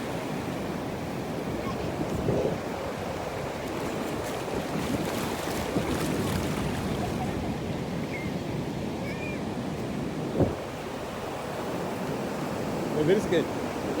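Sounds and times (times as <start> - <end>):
ocean surf breaking: 0.0 - 14.0
wind on microphone: 1.2 - 12.2.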